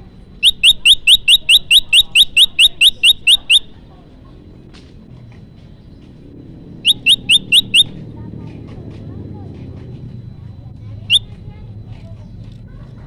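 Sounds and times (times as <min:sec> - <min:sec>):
bird rising chirps: 0:00.4 - 0:03.7, 0:06.8 - 0:08.0.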